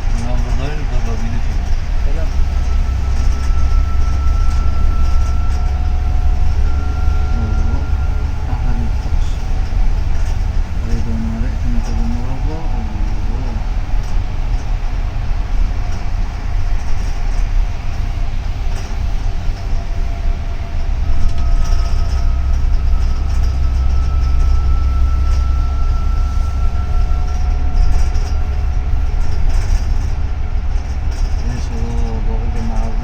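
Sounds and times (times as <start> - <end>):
bus engine and road rumble: 0.0 - 33.0
faint high whine: 0.0 - 33.0.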